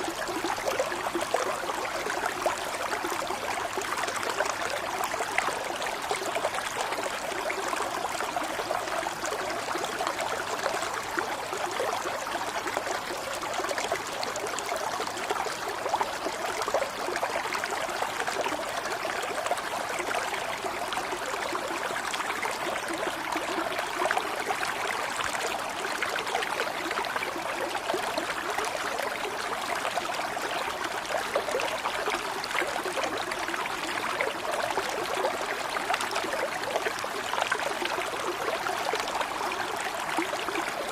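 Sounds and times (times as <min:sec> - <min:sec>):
stream babbling over stones: 0:00.0 - 0:40.9.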